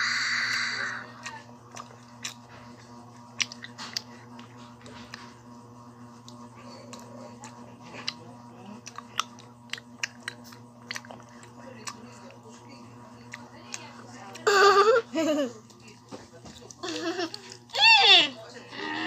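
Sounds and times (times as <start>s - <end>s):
faint steady hum: 0.0s - 19.0s
mouth clicks and smacks chewing: 3.4s - 4.1s, 8.8s - 12.0s.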